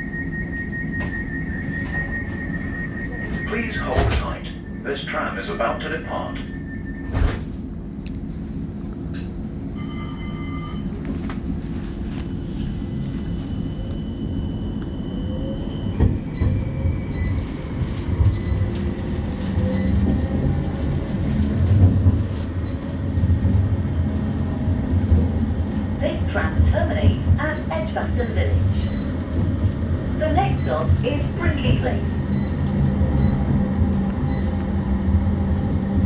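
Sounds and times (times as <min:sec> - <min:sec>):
short beeping tone: 0:00.0 - 0:04.8, 0:06.1 - 0:07.4
tram electric whine: 0:00.0 - 0:36.0
wheels rumbling on rail: 0:00.0 - 0:36.0.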